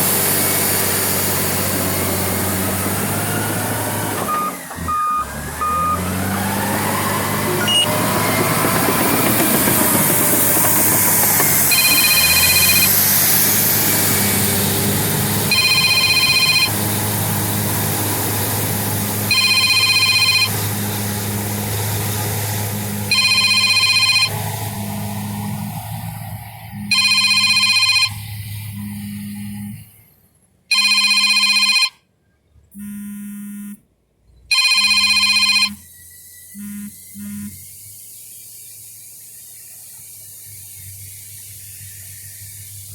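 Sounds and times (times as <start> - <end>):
bulldozer diesel engine under load: 0.0 - 31.8, 34.4 - 38.5
electronic ringing tone: 7.6 - 7.9, 11.6 - 13.0, 15.5 - 16.7, 19.3 - 20.5, 23.1 - 24.4, 26.8 - 29.8, 30.7 - 32.0, 34.5 - 35.9, 36.6 - 37.6.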